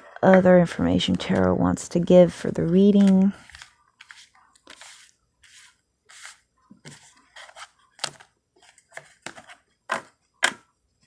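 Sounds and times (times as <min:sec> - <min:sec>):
cards swishing and tapping on table: 0:02.9 - 0:10.1.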